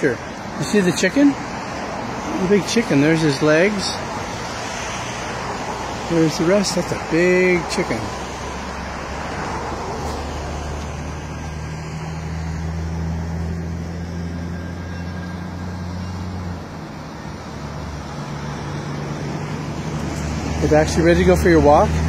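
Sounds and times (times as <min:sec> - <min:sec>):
engine humming: 0:00.0 - 0:22.0
road traffic noise: 0:00.0 - 0:22.0.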